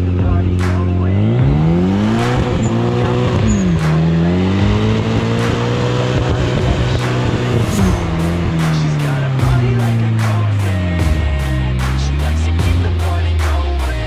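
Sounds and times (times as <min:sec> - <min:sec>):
car engine revving hard: 0:00.0 - 0:13.7.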